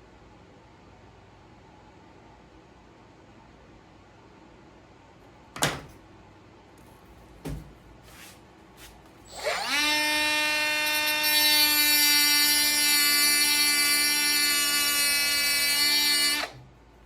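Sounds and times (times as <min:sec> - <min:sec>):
power tool motor whining: 0:09.3 - 0:16.6.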